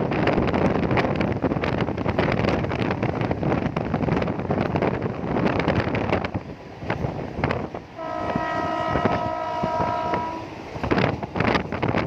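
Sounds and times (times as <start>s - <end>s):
wind buffeting microphone: 0.0s - 12.0s
multi-tone horn blast: 8.0s - 10.6s.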